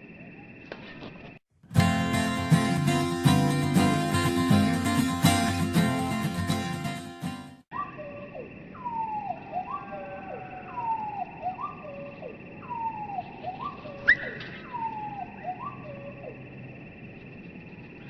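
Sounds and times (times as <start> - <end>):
slowed-down birdsong: 7.8 - 18.0.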